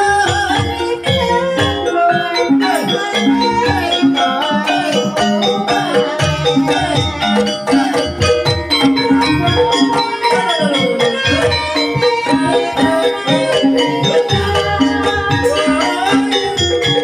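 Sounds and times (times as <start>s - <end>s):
gamelan ensemble playing: 0.0s - 17.0s.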